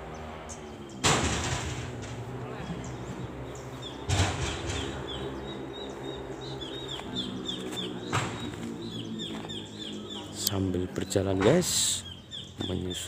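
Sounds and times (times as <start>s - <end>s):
steady low hum: 0.0s - 13.0s
loud rustle or thump: 1.0s - 2.2s.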